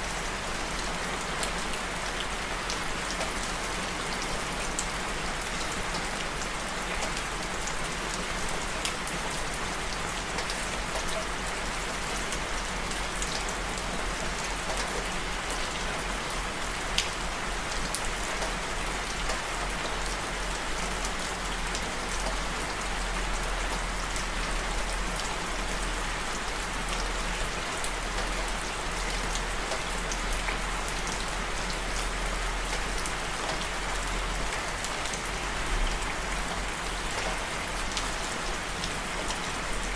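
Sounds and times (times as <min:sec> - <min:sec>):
steady rainfall hiss: 0:00.0 - 0:39.9.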